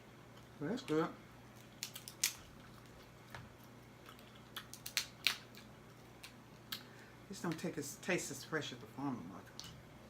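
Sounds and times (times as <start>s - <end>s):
crab shell cracking: 1.5s - 6.9s.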